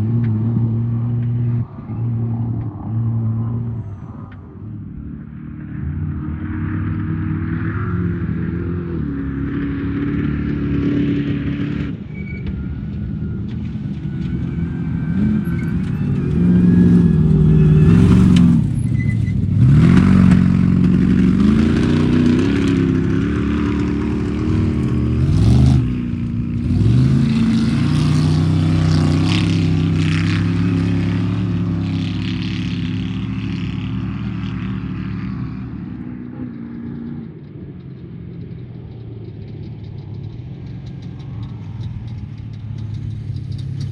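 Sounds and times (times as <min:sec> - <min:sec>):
race engine revving: 0:14.2 - 0:34.4.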